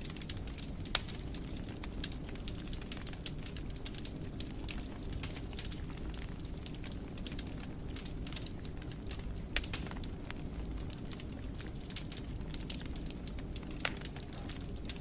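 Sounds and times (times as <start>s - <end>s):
fireplace fire crackling: 0.0s - 15.0s.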